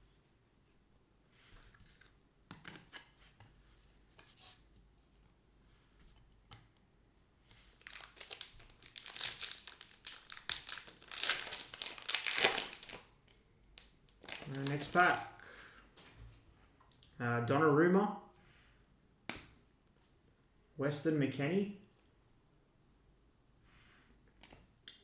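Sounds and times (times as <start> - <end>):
foil pack crinkling: 7.7 - 13.1, 13.8 - 15.4.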